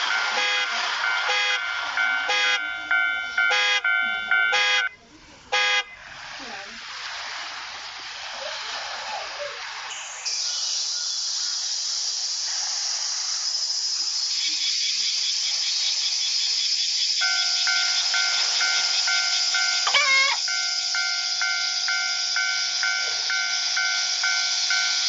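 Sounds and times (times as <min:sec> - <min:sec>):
railroad crossing bell ringing: 0:00.0 - 0:05.0, 0:17.2 - 0:25.0
steady high hiss: 0:00.0 - 0:25.0.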